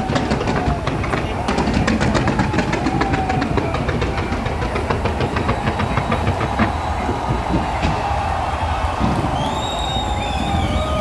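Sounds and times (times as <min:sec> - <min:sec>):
fireworks crackling pops: 0:00.0 - 0:11.0.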